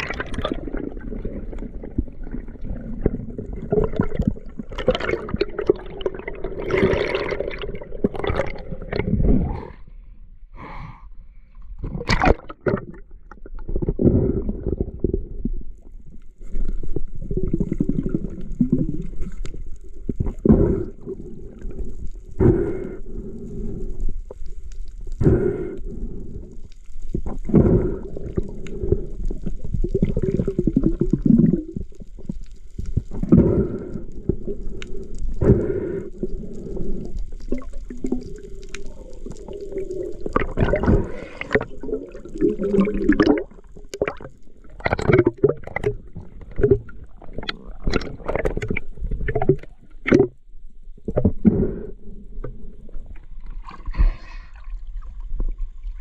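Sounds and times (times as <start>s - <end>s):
underwater gurgling and bubbling: 0.0s - 9.8s, 11.8s - 56.0s
knocks and splashes: 11.9s - 12.9s.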